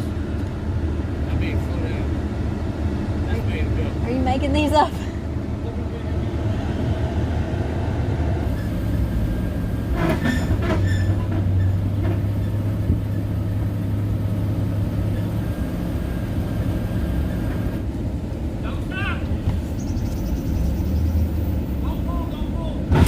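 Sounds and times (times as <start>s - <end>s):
truck rolling with rattling: 8.4s - 23.0s.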